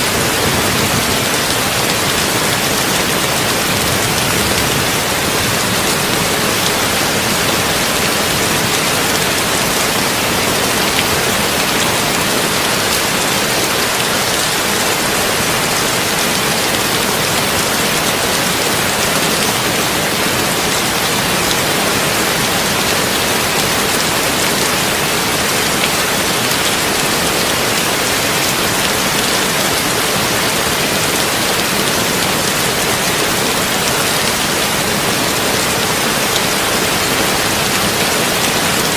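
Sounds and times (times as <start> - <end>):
heavy rain on a tin roof: 0.0 - 38.9.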